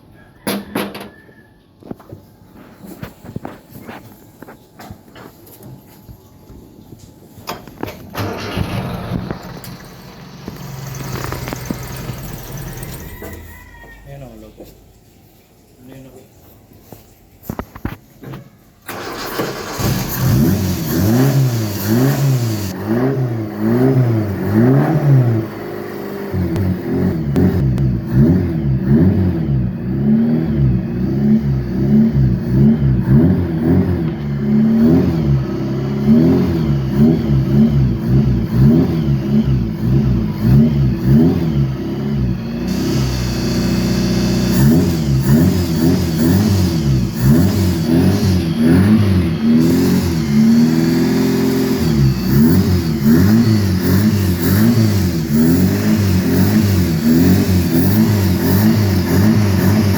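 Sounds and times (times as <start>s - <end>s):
car engine revving: 8.2s - 13.3s, 18.9s - 59.9s.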